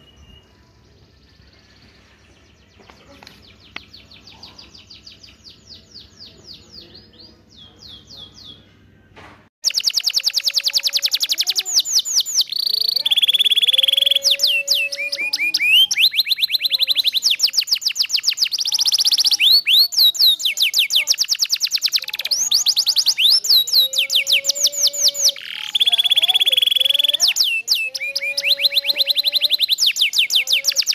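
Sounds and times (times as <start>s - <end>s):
canary singing: 9.6s - 30.9s.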